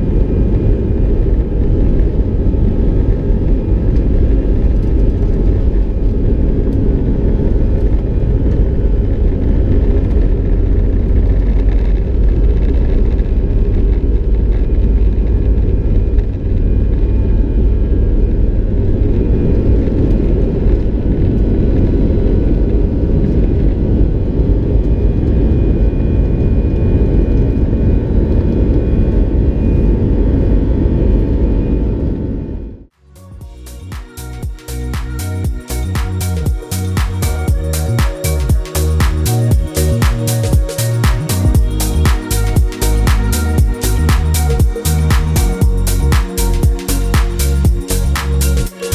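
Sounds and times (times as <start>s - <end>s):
aircraft engines and airflow rumble: 0.0s - 32.8s
faint whine tones: 0.0s - 48.9s.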